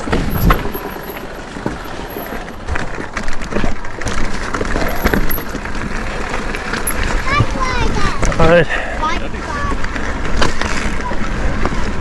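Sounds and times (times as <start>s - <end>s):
bike rattling knocks: 0.0s - 8.5s
bike tyre noise on rough track: 0.0s - 12.0s.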